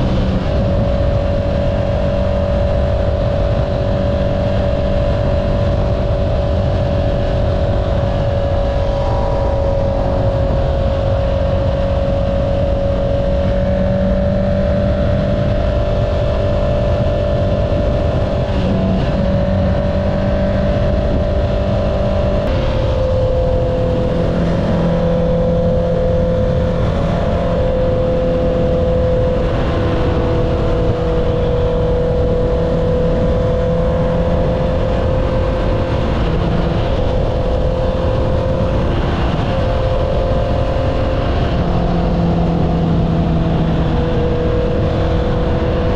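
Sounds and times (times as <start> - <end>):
low wind rumble: 0.0 - 45.9
motorcycle engine cruising: 0.0 - 45.9.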